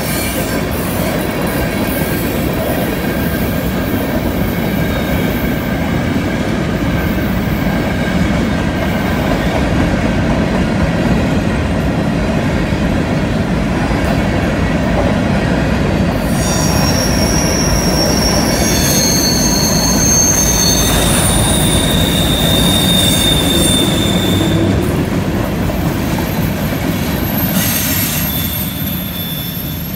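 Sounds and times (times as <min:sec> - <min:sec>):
train wheels rumbling on rail: 0:00.0 - 0:29.9
shrill wheel squeal: 0:16.0 - 0:25.0, 0:26.0 - 0:29.9.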